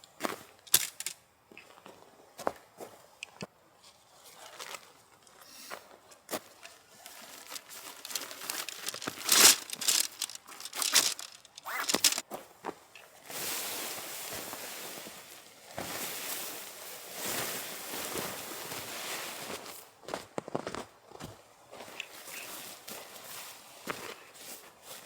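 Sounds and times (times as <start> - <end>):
material crinkling and rustling: 6.4 - 12.2.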